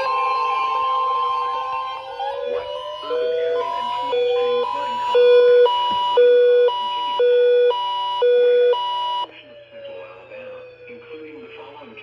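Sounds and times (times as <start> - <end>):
two-tone electronic alert: 0.0 - 9.3.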